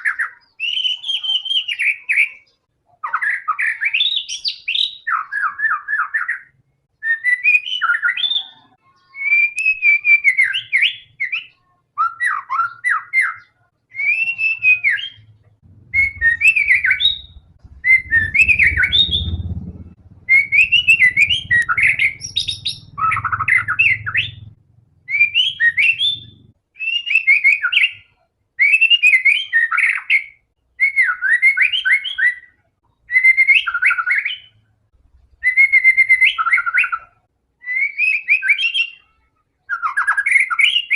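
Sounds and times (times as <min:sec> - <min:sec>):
songbird singing: 0:00.0 - 0:39.1
low rumble: 0:15.2 - 0:26.6.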